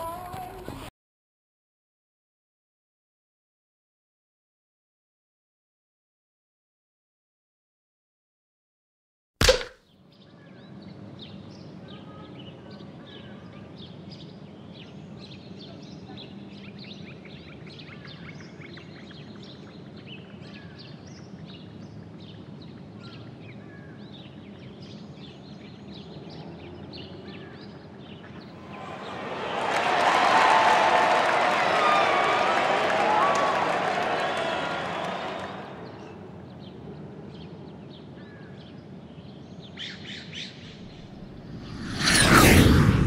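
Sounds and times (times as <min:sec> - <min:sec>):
sharp click: 0:09.4 - 0:09.8.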